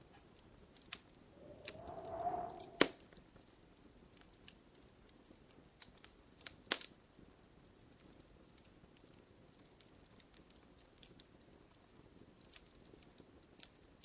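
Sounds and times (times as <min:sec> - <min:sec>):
wood fire crackling: 0:00.7 - 0:03.0, 0:04.2 - 0:14.0
faint rising tone: 0:01.4 - 0:02.9.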